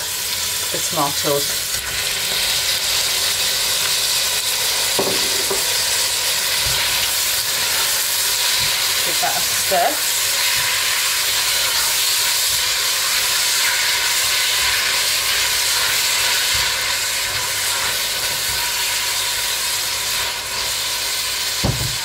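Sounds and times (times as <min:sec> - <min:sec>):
vegetables sizzling in hot oil: 0:00.0 - 0:22.0
spatula knocking in pot: 0:05.0 - 0:05.7.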